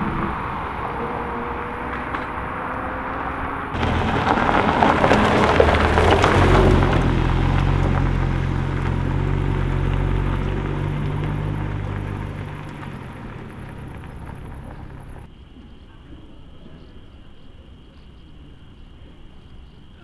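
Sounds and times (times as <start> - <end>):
sports car engine holding revs: 0.0 - 15.3.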